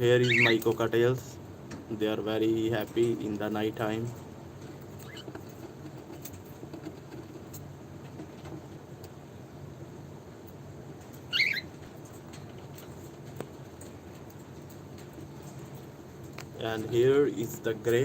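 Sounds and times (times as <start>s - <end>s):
birds moving in cage ticks: 0.0s - 18.0s
low background hum: 0.0s - 18.0s
cockatiel chirp: 0.2s - 0.6s, 5.0s - 5.3s, 11.3s - 11.7s.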